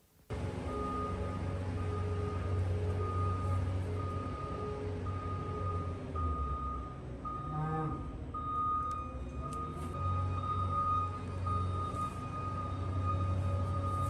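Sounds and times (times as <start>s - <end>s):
low engine rumble: 0.3s - 14.0s
lower-pitched backup beep: 0.6s - 14.0s
high-pitched backup beep: 3.0s - 14.0s.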